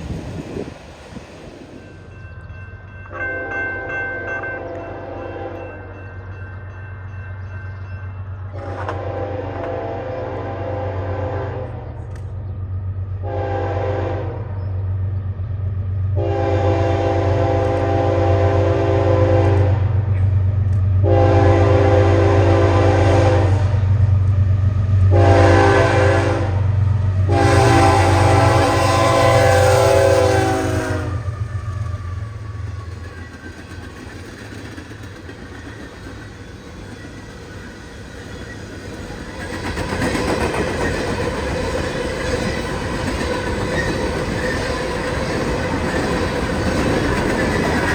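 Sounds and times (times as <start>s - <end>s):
train rumbling: 0.0s - 47.9s
locomotive air horn blasts: 3.1s - 5.7s, 8.6s - 12.0s, 13.2s - 14.5s, 16.2s - 19.9s, 21.0s - 23.9s, 25.1s - 31.4s.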